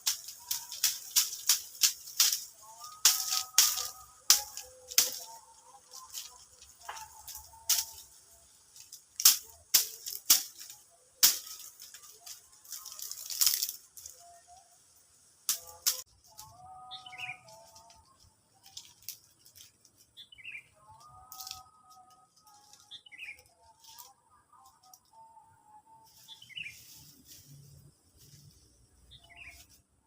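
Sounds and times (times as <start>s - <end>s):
sharp cracks and crunches: 0.0s - 14.5s, 15.4s - 16.6s, 17.4s - 20.1s, 21.1s - 24.1s.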